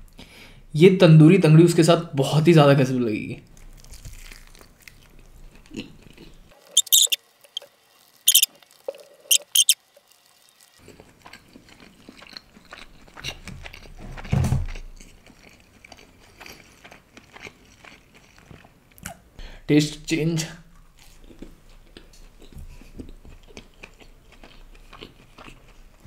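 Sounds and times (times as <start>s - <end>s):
chewing: 3.6s - 7.7s, 8.3s - 9.8s, 10.8s - 19.2s, 20.7s - 26.0s
wet mouth clicks and lip smacks: 8.3s - 8.5s, 9.3s - 9.8s.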